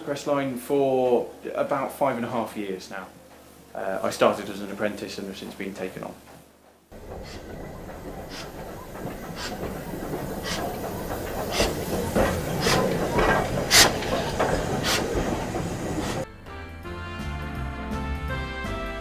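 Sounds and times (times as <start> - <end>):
train wheels rumbling: 3.0 - 16.3
wheels clacking over rail joints: 6.2 - 16.3
music: 16.2 - 19.0.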